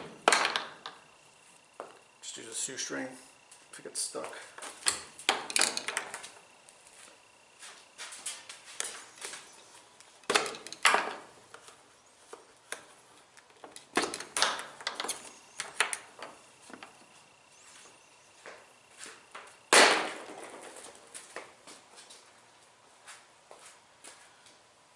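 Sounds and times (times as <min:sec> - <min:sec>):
tools clicking and knocking: 0:04.8 - 0:06.2, 0:10.2 - 0:11.6, 0:12.7 - 0:17.0.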